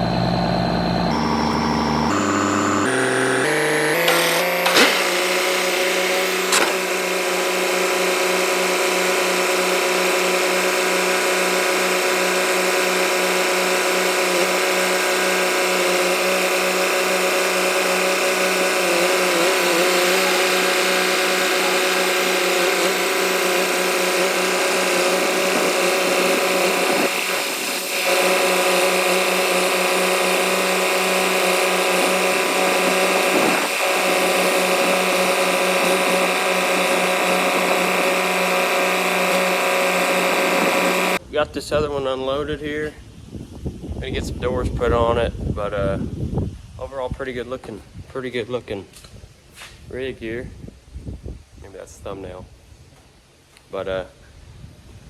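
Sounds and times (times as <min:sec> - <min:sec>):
machinery with geared whine: 0:00.0 - 0:42.5.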